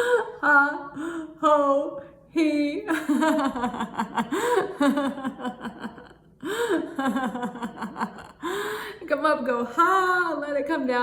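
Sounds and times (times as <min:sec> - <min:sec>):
woman laughing: 0:02.7 - 0:08.6.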